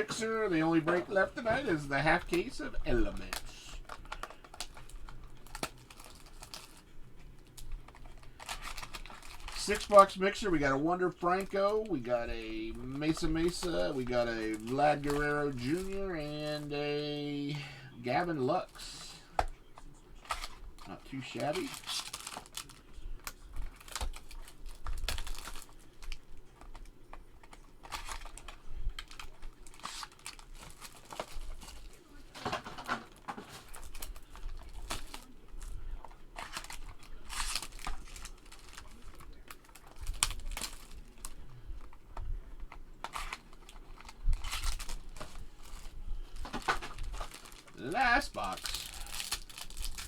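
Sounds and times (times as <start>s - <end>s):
wrappers crinkling and tearing: 0.0s - 50.0s
cards clicking and tapping: 0.1s - 17.2s.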